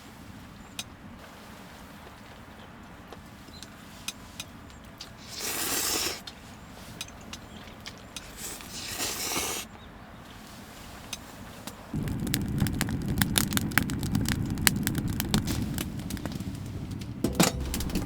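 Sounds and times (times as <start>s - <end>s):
wood fire crackling and popping: 11.6s - 18.0s.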